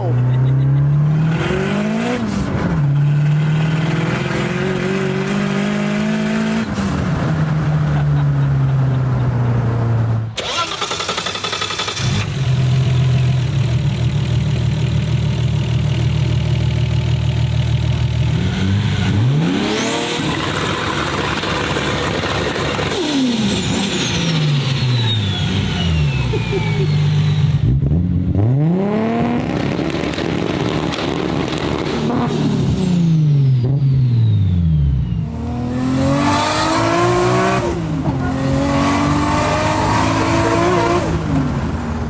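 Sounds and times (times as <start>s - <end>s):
car engine idling and revving: 0.0s - 42.0s
car engine accelerating in cabin: 12.0s - 42.0s.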